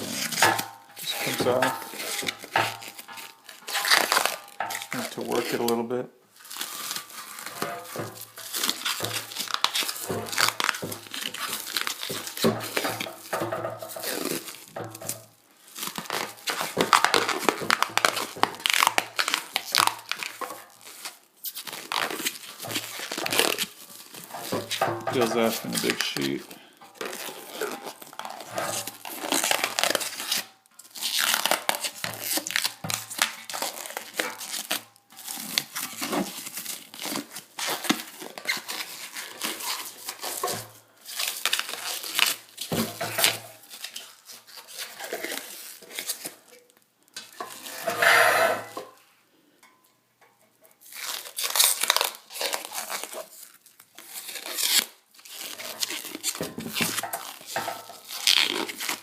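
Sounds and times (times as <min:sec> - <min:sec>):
rubber coating tearing and crinkling: 0:00.0 - 0:49.0, 0:50.6 - 0:59.0.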